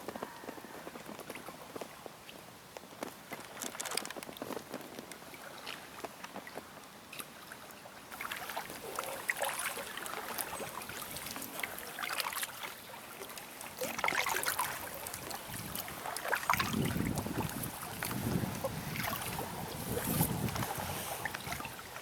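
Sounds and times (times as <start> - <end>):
paddle strokes splashing: 5.3 - 22.0
wind buffeting microphone: 15.1 - 22.0.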